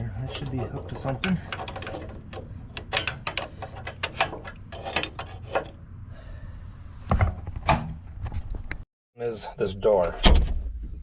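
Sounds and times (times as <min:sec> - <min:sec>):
metal parts clicking and rubbing: 0:00.0 - 0:05.8.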